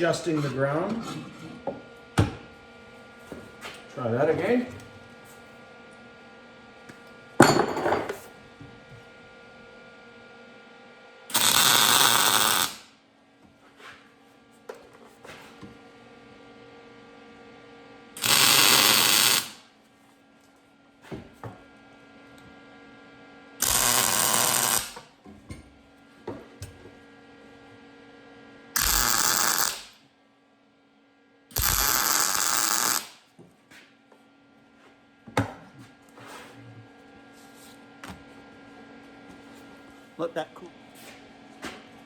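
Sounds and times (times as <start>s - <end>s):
welder humming: 11.3s - 12.9s, 18.2s - 19.6s, 23.6s - 25.2s, 28.7s - 30.0s, 31.5s - 33.2s
welding arc crackle: 11.3s - 12.9s, 18.2s - 19.6s, 23.6s - 25.1s, 28.8s - 30.0s, 31.5s - 33.2s.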